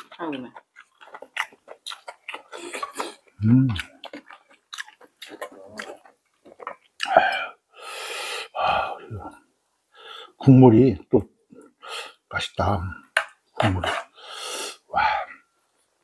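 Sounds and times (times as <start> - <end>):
chewing food: 0.0 - 7.4.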